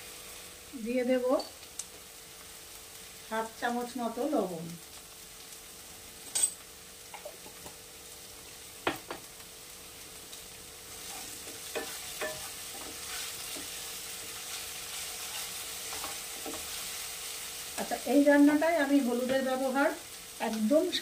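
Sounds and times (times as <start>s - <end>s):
onions sizzling in oil: 0.0s - 21.0s
utensils scraping a pan: 11.0s - 17.0s.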